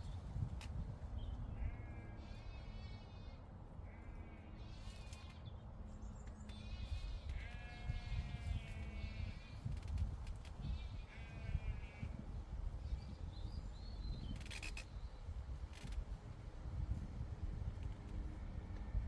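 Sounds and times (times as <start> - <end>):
wind rumbling on microphone: 0.0 - 1.8, 6.9 - 19.0
farm animals bleating: 7.3 - 9.2.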